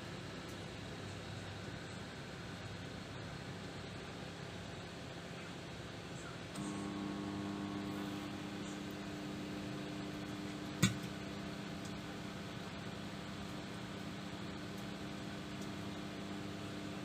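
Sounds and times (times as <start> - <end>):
microwave oven humming: 0.0 - 17.0
low buzz: 6.6 - 17.0
sharp click: 10.8 - 11.1.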